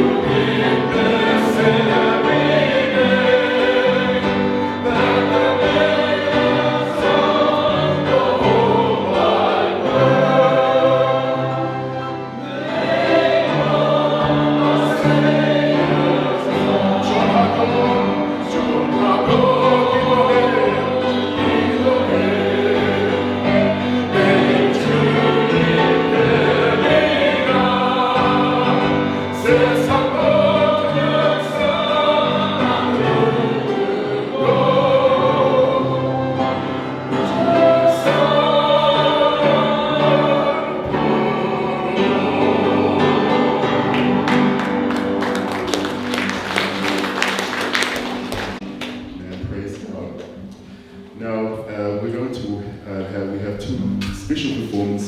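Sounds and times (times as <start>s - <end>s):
choir singing a hymn: 0.0s - 49.3s.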